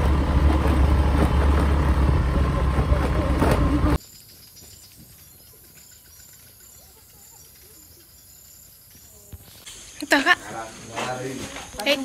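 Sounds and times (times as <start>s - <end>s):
distant birds calling: 4.0s - 12.0s.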